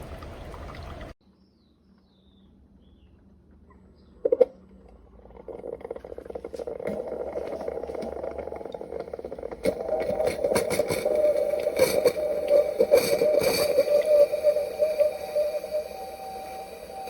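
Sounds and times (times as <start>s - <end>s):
coffee maker pump hum: 4.2s - 17.0s
water crackling and sputtering: 5.1s - 17.0s.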